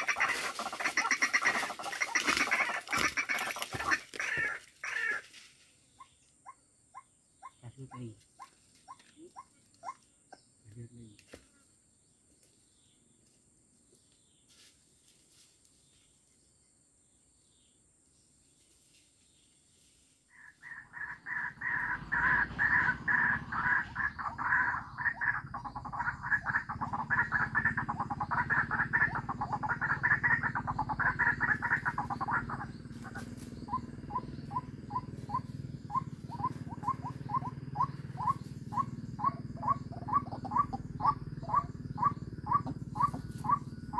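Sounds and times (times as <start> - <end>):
waterhen calling: 0.0 - 5.2, 20.4 - 43.9.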